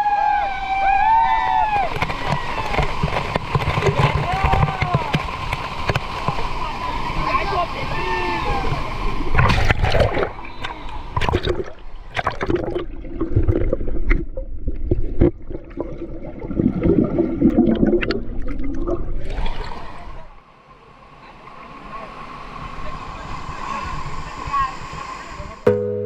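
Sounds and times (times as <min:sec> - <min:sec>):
water splashing and gurgling: 0:01.8 - 0:20.4
knocks and thumps: 0:01.9 - 0:06.4.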